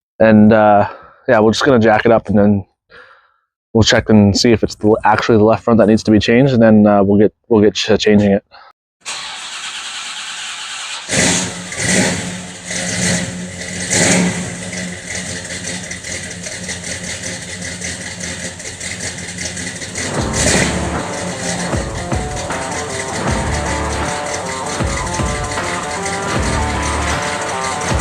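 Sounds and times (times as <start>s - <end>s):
car engine starting and running: 9.0s - 28.0s.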